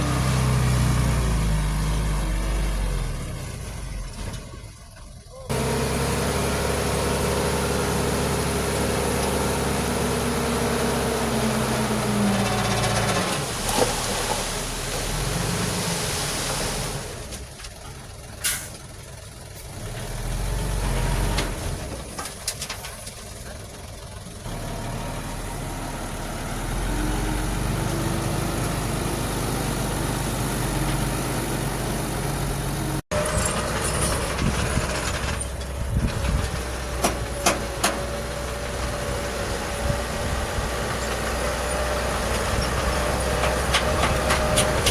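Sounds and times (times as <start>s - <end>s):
heavy diesel engines running: 0.0s - 44.9s.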